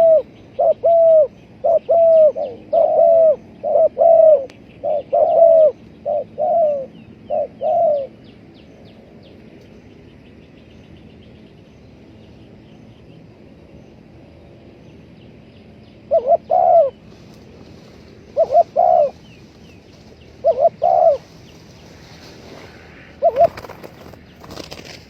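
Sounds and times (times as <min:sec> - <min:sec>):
dove cooing: 0:00.0 - 0:08.2, 0:16.1 - 0:21.9, 0:23.0 - 0:25.0
small birds chirping: 0:00.0 - 0:25.0.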